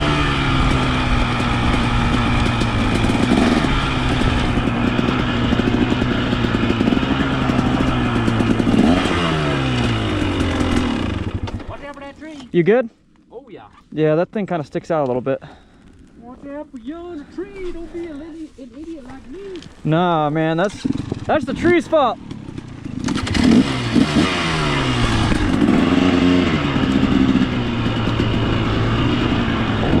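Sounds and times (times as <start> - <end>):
dirt bike engine revving: 0.0 - 11.6, 19.8 - 30.0.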